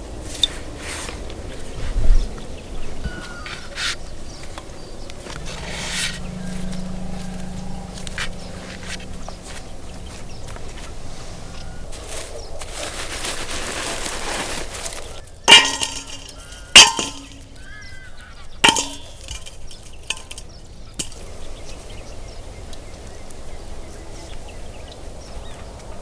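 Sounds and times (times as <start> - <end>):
soft rustling: 0.2 - 17.8
faint bird chirping: 0.3 - 13.0
metal cooking utensils clinking: 15.3 - 21.4.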